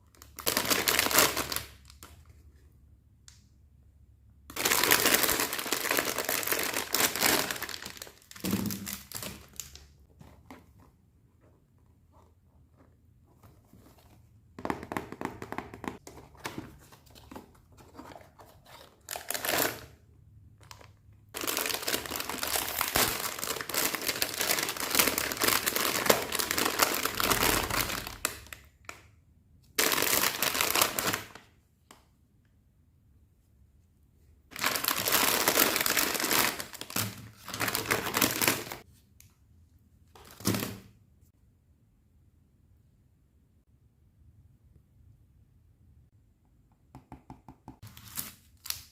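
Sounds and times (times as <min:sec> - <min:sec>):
packaging crinkling: 0:04.6 - 0:09.8, 0:20.6 - 0:28.5, 0:29.8 - 0:31.4, 0:34.5 - 0:38.8.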